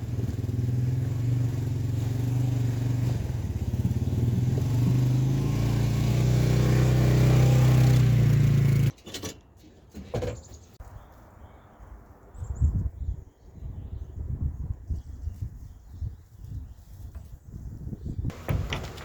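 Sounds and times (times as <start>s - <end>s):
vehicle engine running: 0.0s - 8.9s, 18.3s - 19.0s.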